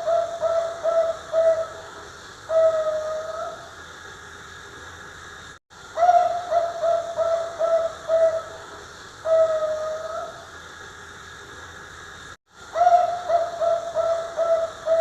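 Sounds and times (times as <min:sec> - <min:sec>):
dove cooing: 0:00.0 - 0:03.6, 0:06.0 - 0:10.4, 0:12.8 - 0:15.0.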